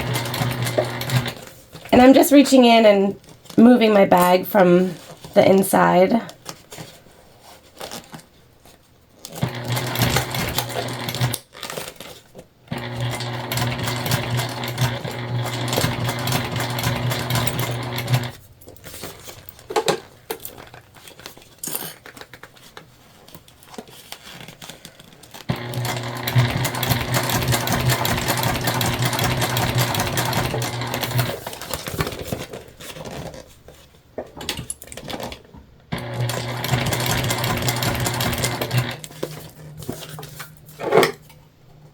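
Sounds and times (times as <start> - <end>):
sewing machine stitching: 0.0 - 2.1, 9.3 - 11.4, 12.7 - 18.4, 25.5 - 31.6, 35.9 - 39.1.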